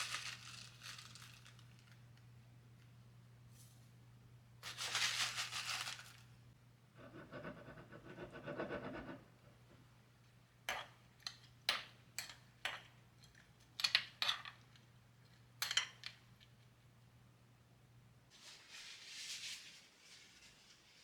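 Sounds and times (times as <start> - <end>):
faint steady hum: 0.0 - 13.8
small objects clicking and tapping: 10.7 - 16.7
soft rustling: 18.3 - 21.0.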